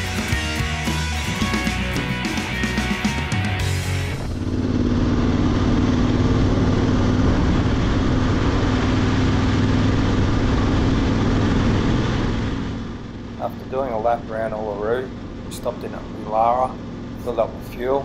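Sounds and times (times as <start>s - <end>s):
motorcycle engine cruising: 0.0s - 18.0s
wind and road rush: 3.6s - 18.0s.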